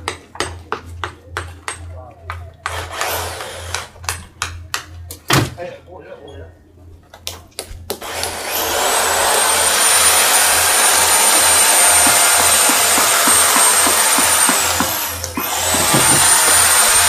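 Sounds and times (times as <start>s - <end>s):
high-speed power tool whining: 8.0s - 17.0s.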